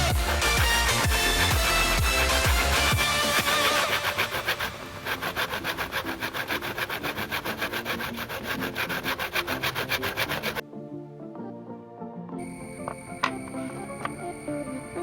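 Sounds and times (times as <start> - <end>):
hand tool rasping on wood: 0.0 - 10.6.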